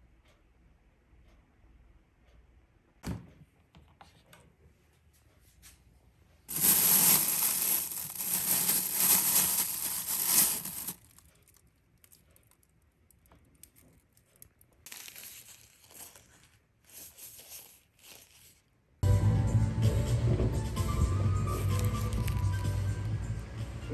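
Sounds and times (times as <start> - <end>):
crinkling and rustling: 6.5 - 18.7, 21.6 - 22.7.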